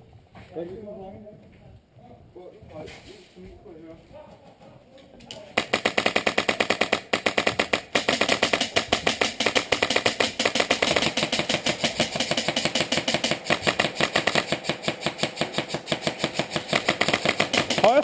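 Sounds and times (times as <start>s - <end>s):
airsoft guns firing full-auto: 5.6s - 18.0s.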